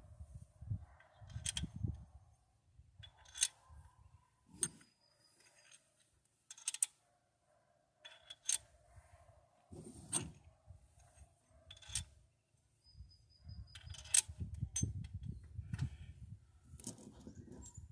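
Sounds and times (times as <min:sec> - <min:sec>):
handling and rubbing: 0:09.7 - 0:10.5, 0:16.7 - 0:17.9.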